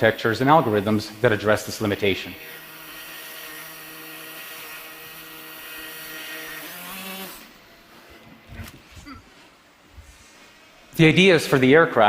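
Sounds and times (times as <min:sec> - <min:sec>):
drone propeller whirring: 0:00.6 - 0:08.8.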